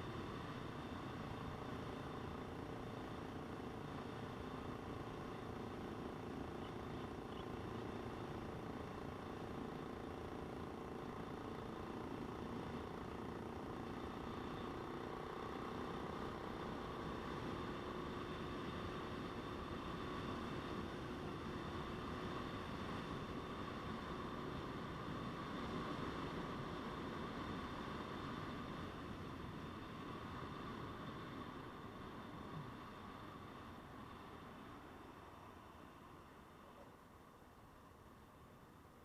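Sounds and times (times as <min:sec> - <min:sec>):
motorcycle engine running: 0:00.1 - 0:34.6.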